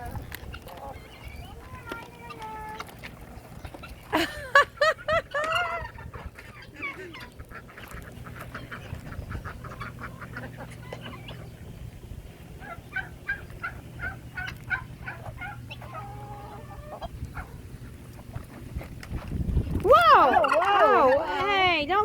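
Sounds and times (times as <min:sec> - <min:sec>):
fowl calling: 0:00.1 - 0:18.3, 0:19.9 - 0:21.7.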